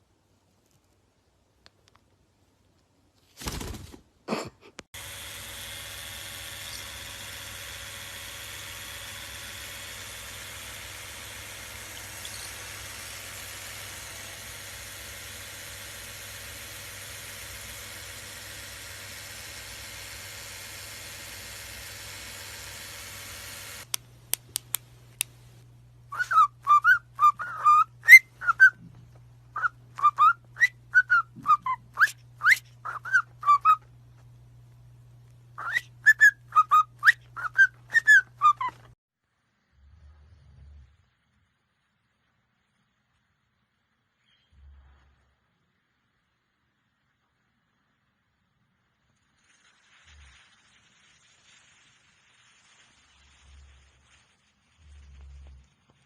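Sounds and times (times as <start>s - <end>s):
parrot whistling: 11.3s - 12.8s, 26.1s - 28.8s, 29.6s - 33.8s, 35.6s - 38.9s
faint hiss: 39.2s - 56.0s.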